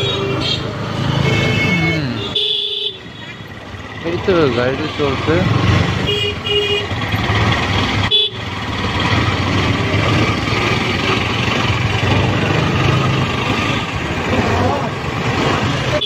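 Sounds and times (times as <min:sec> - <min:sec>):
vehicle horn honking: 0:00.0 - 0:03.4, 0:06.0 - 0:07.1, 0:08.0 - 0:08.5
busy road traffic: 0:00.0 - 0:16.0
motorcycle engine: 0:00.0 - 0:16.0
road and wind noise: 0:00.0 - 0:16.0.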